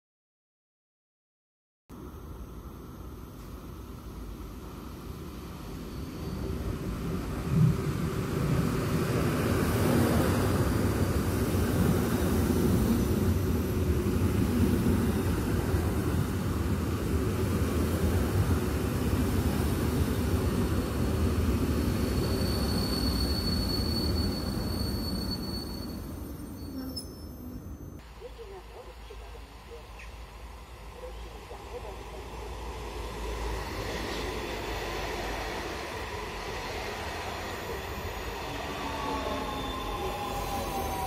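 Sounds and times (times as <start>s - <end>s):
high brake squeal: 5.7s - 6.8s, 21.7s - 28.0s, 37.7s - 41.0s.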